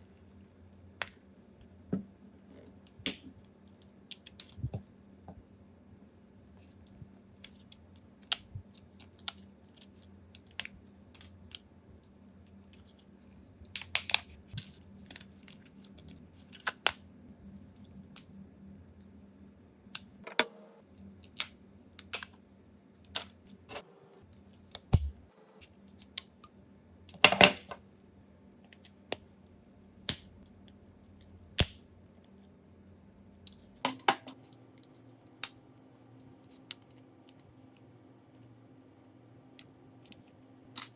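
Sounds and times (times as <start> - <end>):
parts clattering: 20.2 - 20.8.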